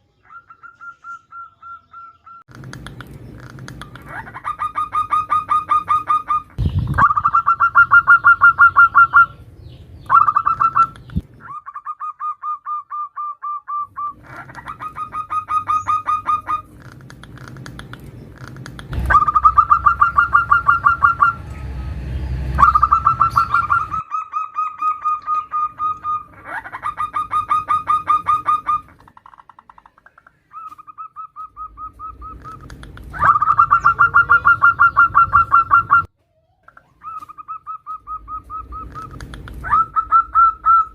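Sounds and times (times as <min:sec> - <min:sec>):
dove cooing: 0:00.3 - 0:09.4, 0:10.1 - 0:21.4, 0:22.6 - 0:29.3, 0:30.5 - 0:36.1, 0:36.8 - 0:40.9
low rumble: 0:16.6 - 0:24.1, 0:38.0 - 0:40.9.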